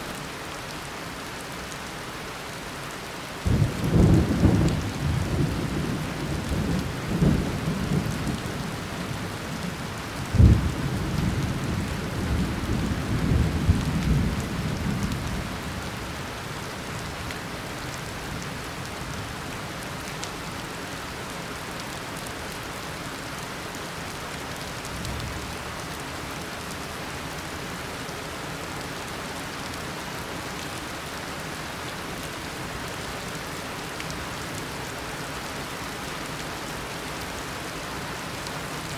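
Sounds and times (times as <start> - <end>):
heavy rain falling: 0.0 - 38.9
rolling thunder: 10.3 - 15.2.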